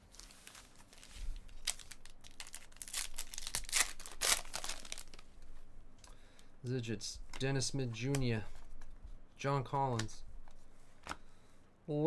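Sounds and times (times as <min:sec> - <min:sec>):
foil wrapper tearing and crinkling: 0:00.1 - 0:05.2.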